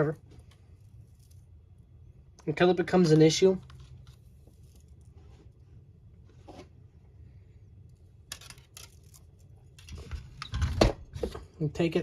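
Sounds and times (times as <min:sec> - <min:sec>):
low steady hum: 0:00.0 - 0:12.0
plastic parts scraping and rustling: 0:02.4 - 0:06.8, 0:07.9 - 0:11.5.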